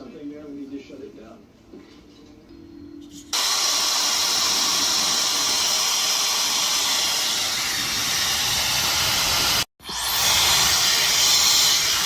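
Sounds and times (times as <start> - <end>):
hair dryer blowing: 3.4 - 12.0.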